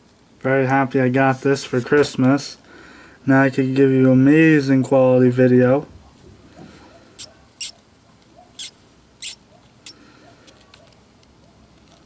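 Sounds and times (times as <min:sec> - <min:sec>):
mouse squeaking: 0:07.2 - 0:07.8, 0:08.4 - 0:10.0.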